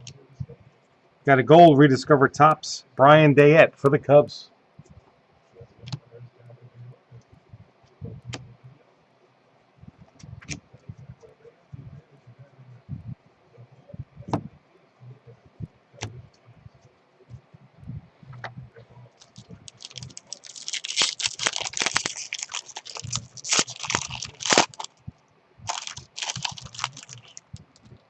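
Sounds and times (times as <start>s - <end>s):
foil wrapper tearing and crinkling: 19.2s - 24.9s, 25.7s - 27.5s.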